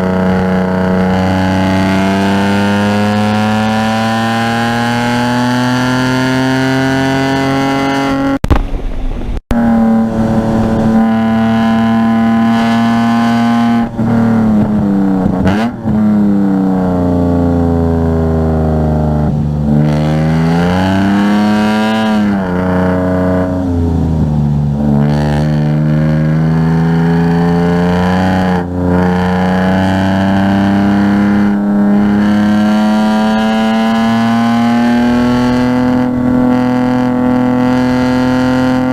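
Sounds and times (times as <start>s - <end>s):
car engine at high revs: 0.0s - 38.9s.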